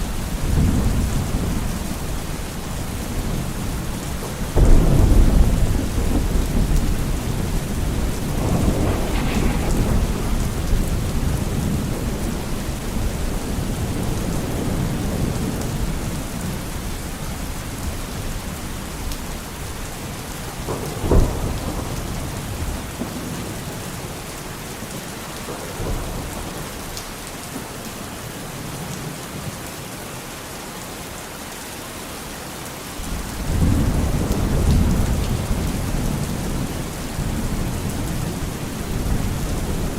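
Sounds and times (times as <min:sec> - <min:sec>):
steady rain: 0:00.0 - 0:39.9
thunder rumble: 0:00.4 - 0:16.2
sharp thunderclap: 0:04.4 - 0:15.4, 0:20.6 - 0:23.3.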